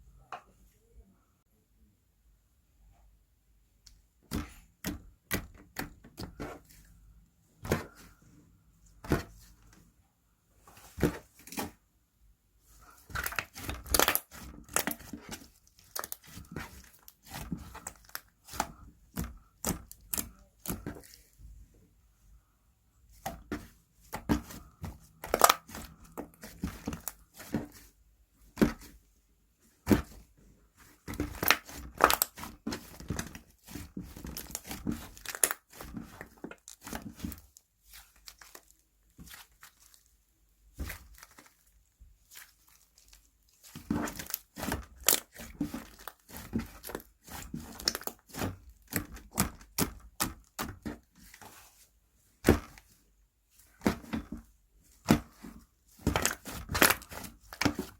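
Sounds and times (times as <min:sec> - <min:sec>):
slime squished by hand: 0:12.9 - 0:21.3, 0:23.2 - 0:27.9, 0:30.9 - 0:40.1, 0:40.7 - 0:51.8, 0:54.9 - 0:57.9.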